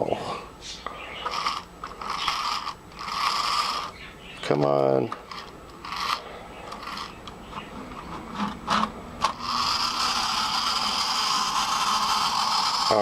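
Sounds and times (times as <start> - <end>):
toy train motor whirring: 1.2 - 4.1, 5.2 - 7.3, 8.4 - 13.0.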